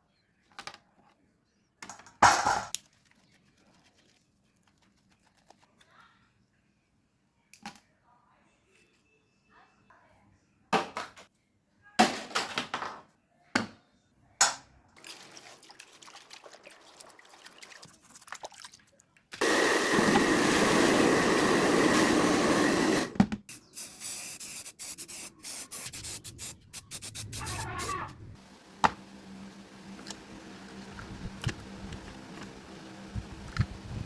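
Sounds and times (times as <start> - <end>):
hissing spray: 19.4 - 30.8.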